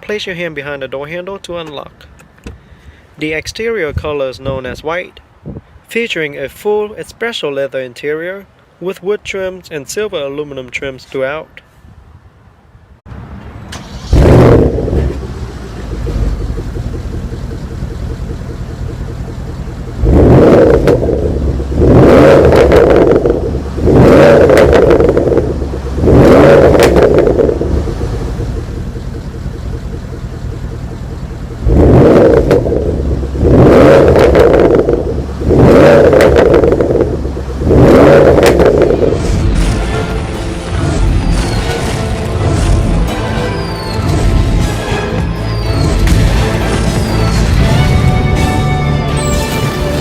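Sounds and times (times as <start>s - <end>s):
car engine starting and idling: 12.5s - 50.0s
exhaust revving blips: 13.8s - 50.0s.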